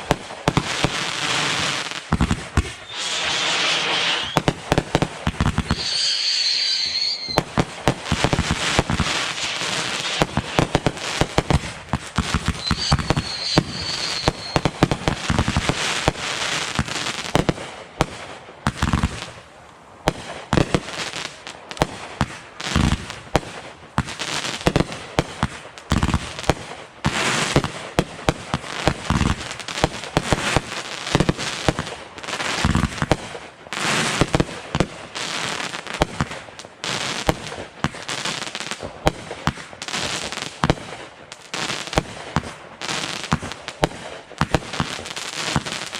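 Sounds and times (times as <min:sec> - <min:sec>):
fireworks bangs and crackling: 0:00.0 - 0:45.9
firework whistle: 0:02.6 - 0:04.6, 0:05.6 - 0:07.6, 0:12.4 - 0:14.9.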